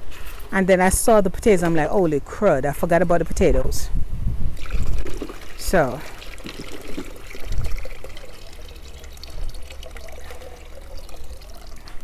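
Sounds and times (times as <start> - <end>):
water pouring and trickling: 4.6 - 12.0.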